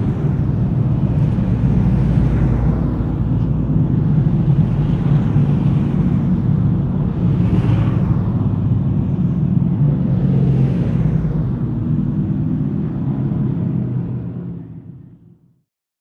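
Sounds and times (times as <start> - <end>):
vehicle engine rumbling: 0.0 - 15.6.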